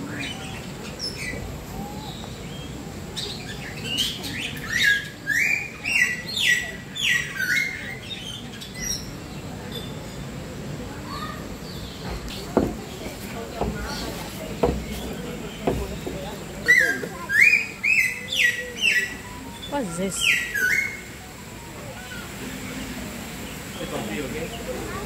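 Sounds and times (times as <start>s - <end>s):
songbirds calling: 0.0s - 25.0s
soft bird chirps: 11.1s - 25.0s
loud whistled bird notes: 16.6s - 21.2s.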